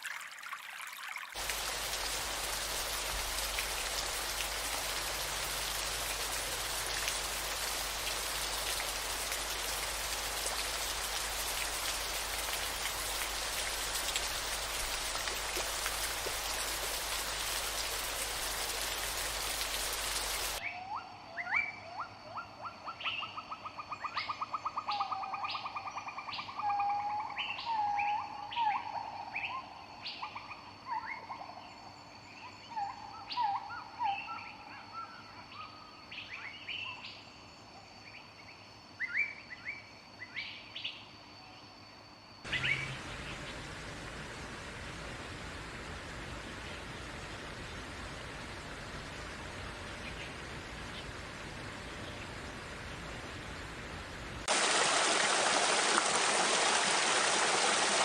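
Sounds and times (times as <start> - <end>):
hiss of running water: 1.3 - 20.6, 42.5 - 58.0
songbirds singing: 42.5 - 43.7.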